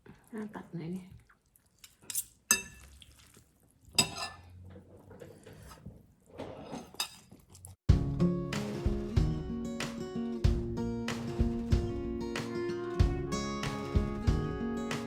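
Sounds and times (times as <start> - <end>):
cutlery and dishes clinking: 4.0 - 7.5
acoustic guitar music: 7.9 - 15.0.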